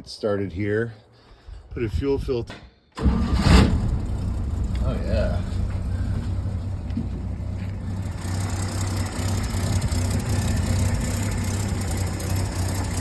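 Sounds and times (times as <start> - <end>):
bus engine running: 3.3 - 13.0.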